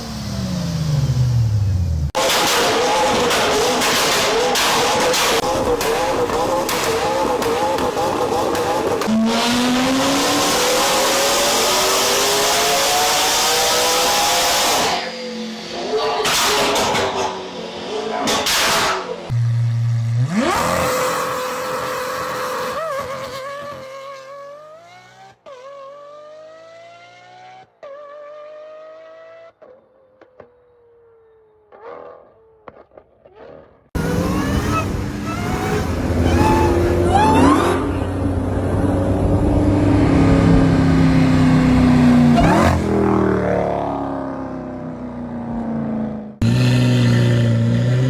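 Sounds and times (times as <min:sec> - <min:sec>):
car engine running hard: 0:00.0 - 0:22.7, 0:34.0 - 0:48.0
car engine accelerating: 0:00.0 - 0:29.8, 0:33.3 - 0:48.0.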